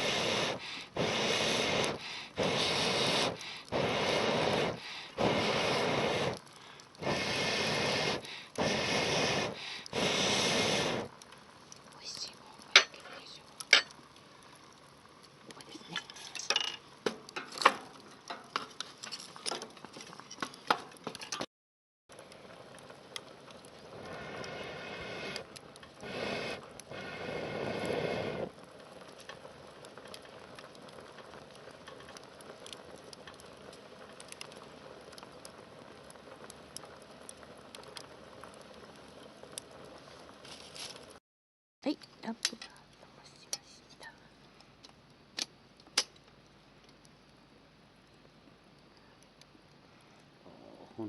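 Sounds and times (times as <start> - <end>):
pot hissing and bubbling: 0.0 - 21.4, 22.1 - 41.2
wood fire crackling and popping: 0.0 - 21.5, 22.1 - 41.2, 41.8 - 50.5.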